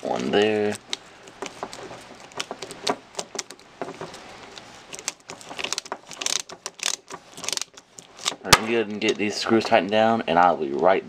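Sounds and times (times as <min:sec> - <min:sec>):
plastic parts being handled: 0:00.0 - 0:10.0
small metal screws rattling: 0:04.9 - 0:08.4.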